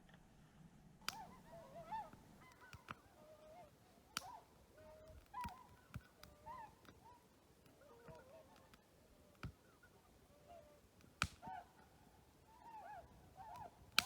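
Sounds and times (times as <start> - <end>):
faint bird calls: 0.0 - 14.0
wood crackling in stove: 10.8 - 11.4, 13.3 - 14.0.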